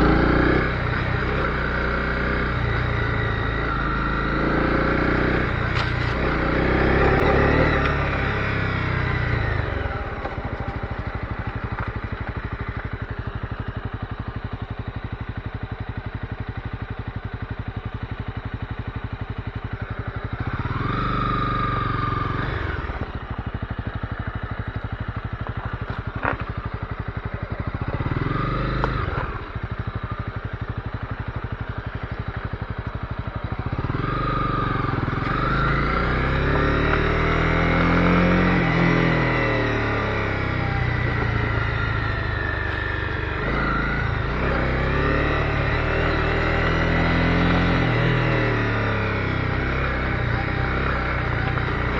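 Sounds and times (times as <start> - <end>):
motorcycle engine idling and revving: 0.0 - 51.9.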